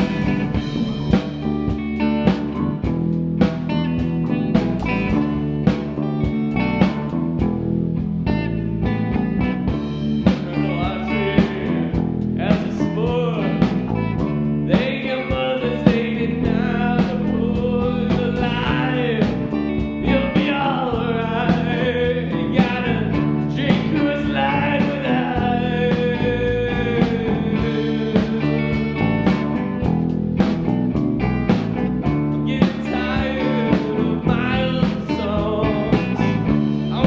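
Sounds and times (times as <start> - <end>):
bass and guitar: 0.0 - 37.0
bending lead guitar melody: 0.0 - 37.0
drums keeping a steady beat: 0.0 - 37.0.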